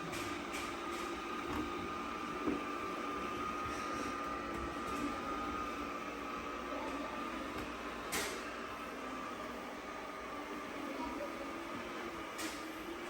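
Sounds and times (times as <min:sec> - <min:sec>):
robot vacuum motor hum and whine: 0:00.0 - 0:13.0.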